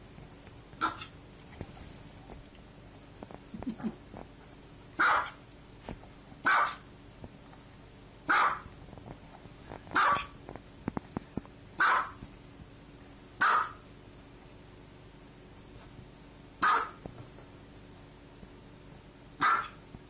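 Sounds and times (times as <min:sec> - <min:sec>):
small dog barking: 0:00.8 - 0:01.2, 0:05.0 - 0:05.4, 0:06.4 - 0:06.9, 0:08.3 - 0:08.7, 0:10.0 - 0:10.4, 0:11.8 - 0:12.2, 0:13.4 - 0:13.8, 0:16.6 - 0:17.0, 0:19.4 - 0:19.8.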